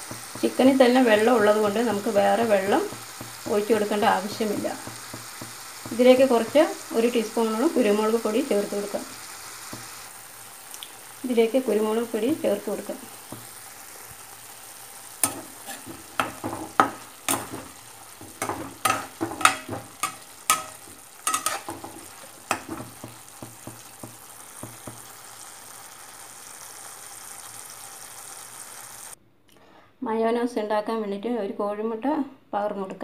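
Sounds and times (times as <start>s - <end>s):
chicken sizzling in a pan: 0.0s - 29.2s
spatula scraping a pan: 15.2s - 25.1s.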